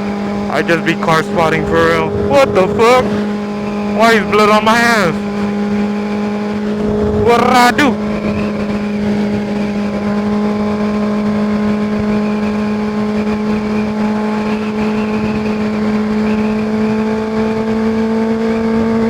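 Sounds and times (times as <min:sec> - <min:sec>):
motorcycle engine running: 0:00.0 - 0:19.0
wind rush: 0:01.5 - 0:04.0, 0:06.5 - 0:07.3.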